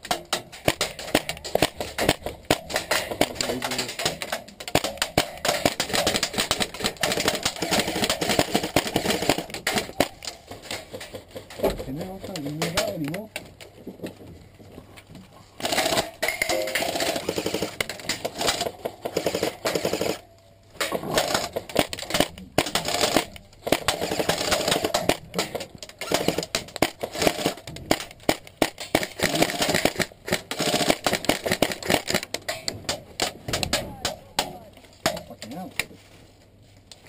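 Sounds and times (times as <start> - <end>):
rapid airsoft gunfire: 0.0 - 10.9, 15.6 - 20.2, 21.1 - 32.4.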